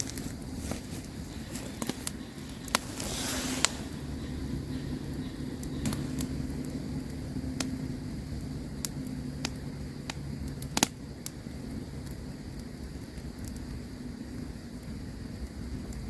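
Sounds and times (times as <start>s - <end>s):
faint hum: 0.0s - 12.4s
campfire crackling: 0.0s - 16.0s.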